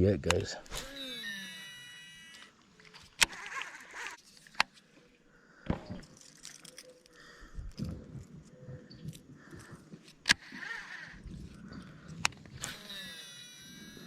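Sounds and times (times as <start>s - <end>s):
sharp clicks: 0.2s - 4.8s, 9.1s - 14.0s.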